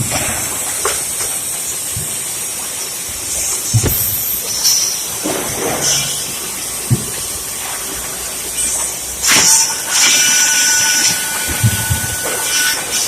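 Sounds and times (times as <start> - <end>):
low knocks: 3.7 - 4.4, 5.2 - 7.9.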